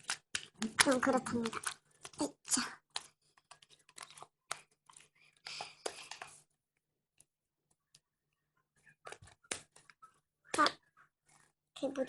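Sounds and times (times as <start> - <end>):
slime squishing and crackling: 0.0 - 6.4.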